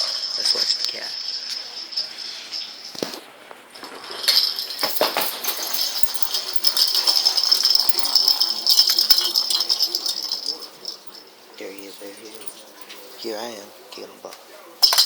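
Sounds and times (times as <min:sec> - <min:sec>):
toy ball rattling: 0:03.8 - 0:13.5, 0:14.8 - 0:15.0.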